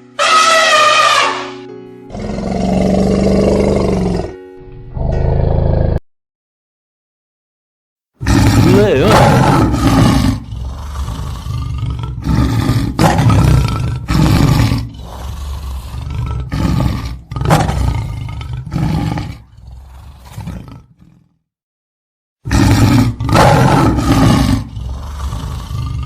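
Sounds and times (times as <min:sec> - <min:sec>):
lion roaring: 0:02.1 - 0:04.4, 0:08.2 - 0:21.4, 0:22.5 - 0:26.0.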